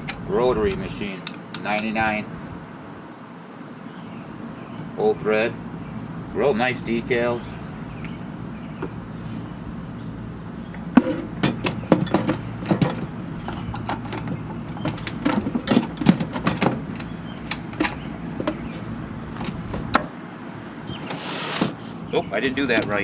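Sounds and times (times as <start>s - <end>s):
hard objects knocking: 10.8s - 20.1s.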